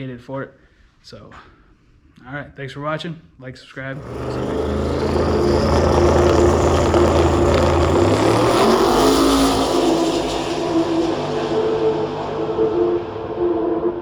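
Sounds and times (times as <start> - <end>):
car engine running: 4.0 - 14.0.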